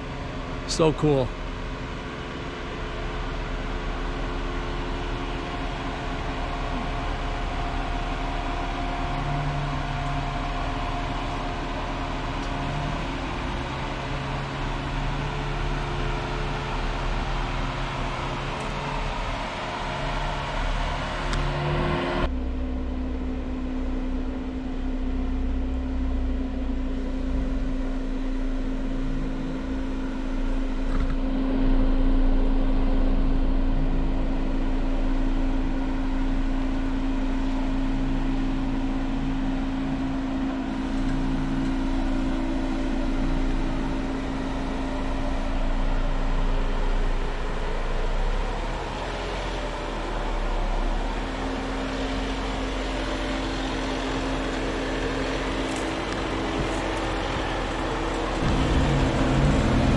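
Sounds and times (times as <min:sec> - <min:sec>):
engine rumbling: 0:00.0 - 0:59.9
steady hum: 0:55.7 - 0:59.9.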